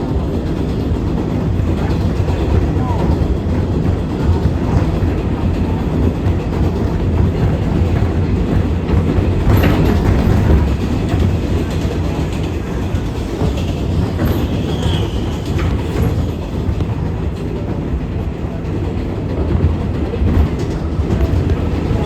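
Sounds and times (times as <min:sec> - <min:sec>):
rail-joint clicks: 0:00.0 - 0:22.0
rumble of wheels on rail: 0:00.0 - 0:22.0
high-pitched wheel squeal: 0:14.1 - 0:16.4.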